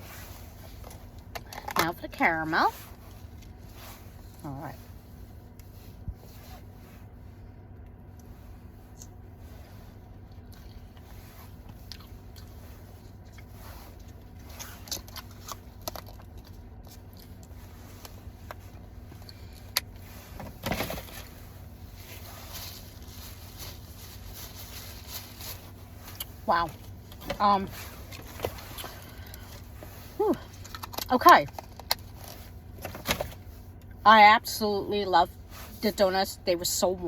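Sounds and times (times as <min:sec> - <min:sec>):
low steady hum: 0:00.0 - 0:37.0
person chewing crunchy food: 0:10.2 - 0:20.0.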